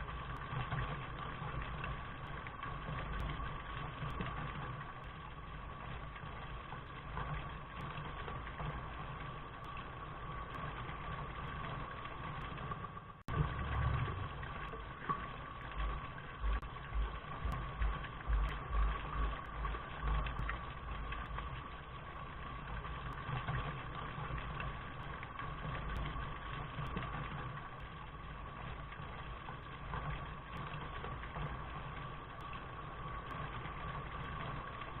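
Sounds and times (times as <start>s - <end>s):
steady rain: 0.0s - 35.0s
deep low rumble: 13.3s - 14.8s, 15.7s - 21.8s.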